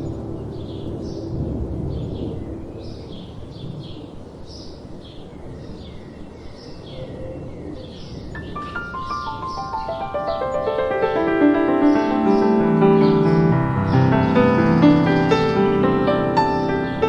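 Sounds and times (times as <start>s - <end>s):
soft piano notes: 0.0s - 4.4s, 8.3s - 17.0s
birds chirping: 0.0s - 17.0s
gentle wind: 0.0s - 17.0s.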